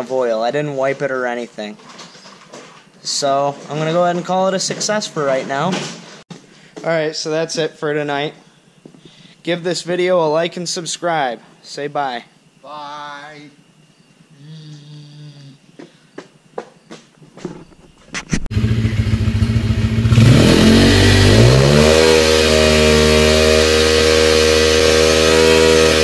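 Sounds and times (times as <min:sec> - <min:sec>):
motorbike engine revving: 0:18.5 - 0:26.0.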